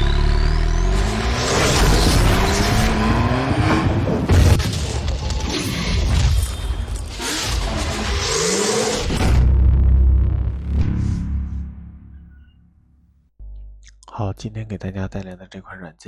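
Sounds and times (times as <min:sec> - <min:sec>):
engine-like revving glides: 0:00.0 - 0:04.6.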